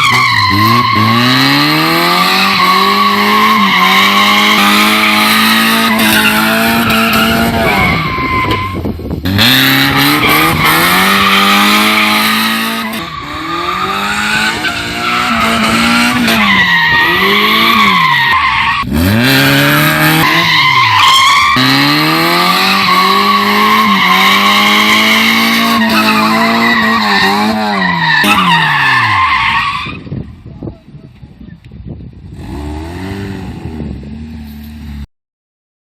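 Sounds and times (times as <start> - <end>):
tires squealing: 0.0 - 30.2
race car engine revving: 0.1 - 8.2, 9.2 - 29.3, 32.3 - 35.0.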